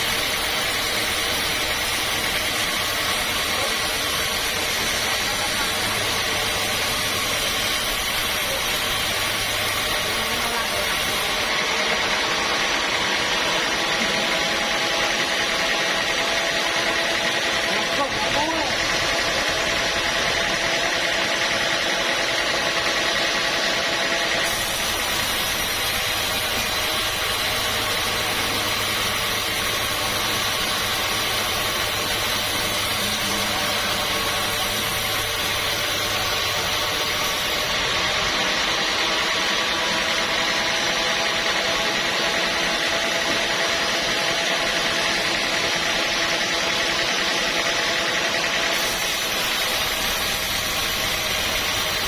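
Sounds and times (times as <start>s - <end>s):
sawmill machinery drone: 0.0s - 52.0s.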